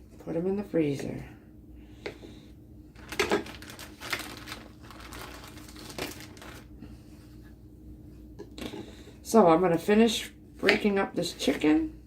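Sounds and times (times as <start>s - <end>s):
frozen chicken crunching by hand: 3.0s - 6.7s.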